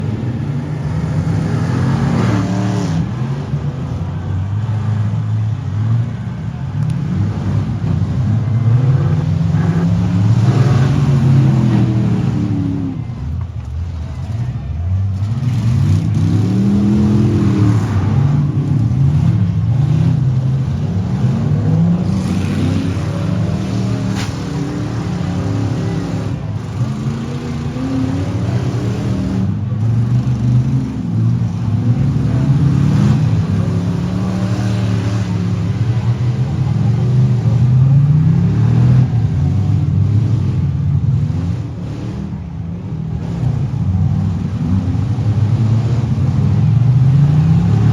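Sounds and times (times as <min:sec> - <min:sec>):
truck and van engines revving: 0:00.0 - 0:47.9.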